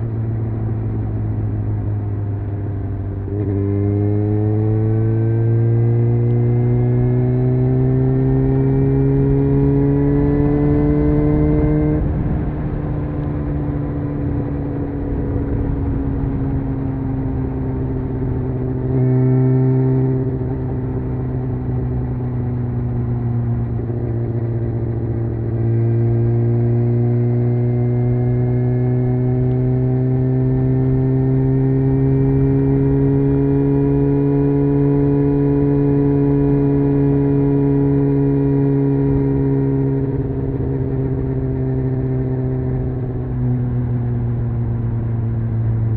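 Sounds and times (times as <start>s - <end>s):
motorcycle engine revving: 0.0s - 45.9s
wind rush: 10.4s - 18.6s.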